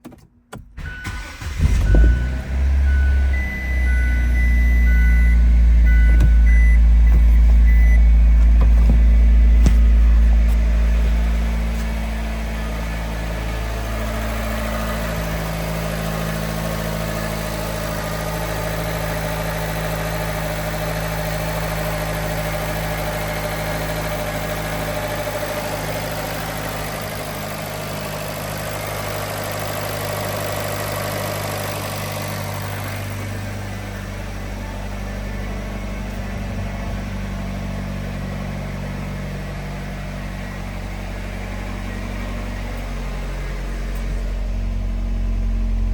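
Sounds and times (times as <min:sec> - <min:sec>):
car engine idling: 0:00.6 - 0:45.9
dashboard warning chimes: 0:00.8 - 0:10.6.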